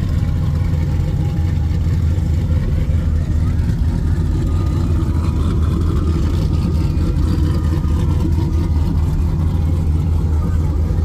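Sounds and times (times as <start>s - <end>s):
engine deep rumble: 0.0s - 11.0s.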